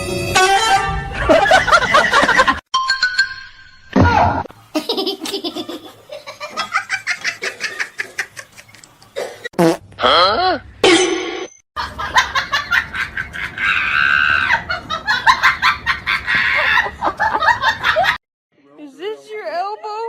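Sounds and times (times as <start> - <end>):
people laughing hard: 1.2 - 2.6, 11.8 - 18.2.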